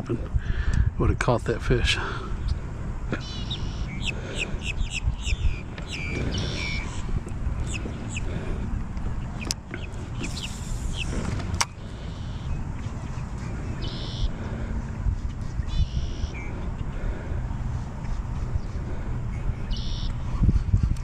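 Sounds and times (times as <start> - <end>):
steady low rumble: 0.0 - 21.0
small birds chirping: 2.3 - 20.6
sharp clicks: 8.9 - 11.8.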